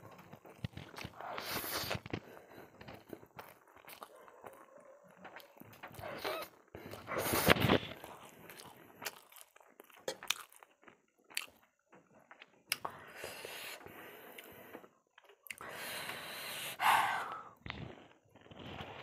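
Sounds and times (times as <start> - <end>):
person chewing noodles: 0.0 - 19.0
wet mouth clicks: 10.0 - 10.4, 12.7 - 13.0.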